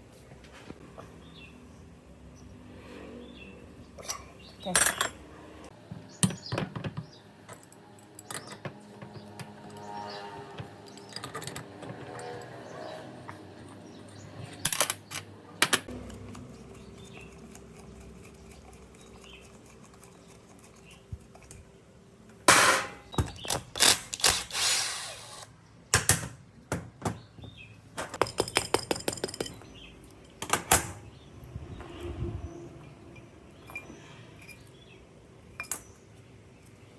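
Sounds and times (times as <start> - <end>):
metal scraping: 9.0 - 14.6
knocks and clinks on metal: 28.0 - 31.0.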